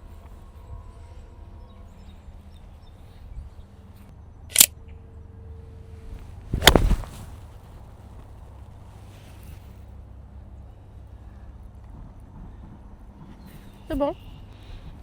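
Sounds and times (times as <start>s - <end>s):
golf club striking ball: 6.6s - 7.2s.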